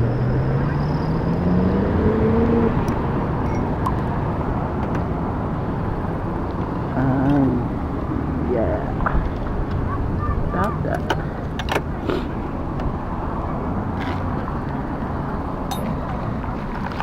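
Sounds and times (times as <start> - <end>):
small gas engine revving: 0.3 - 2.9.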